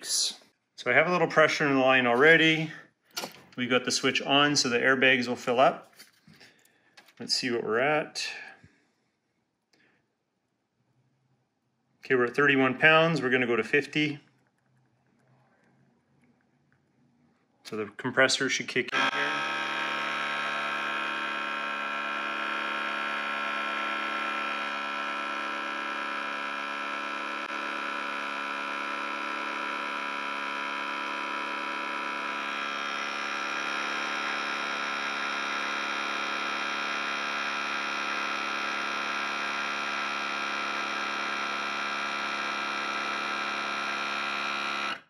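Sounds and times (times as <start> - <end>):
air compressor running: 0.0 - 7.2, 7.8 - 8.7, 18.7 - 45.0.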